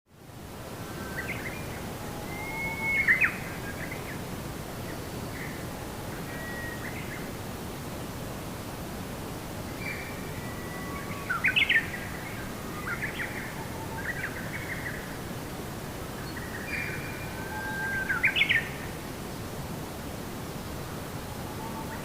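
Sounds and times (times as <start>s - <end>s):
steady background hiss: 0.1s - 22.0s
songbird singing: 0.8s - 7.4s, 9.6s - 19.0s, 20.6s - 22.0s.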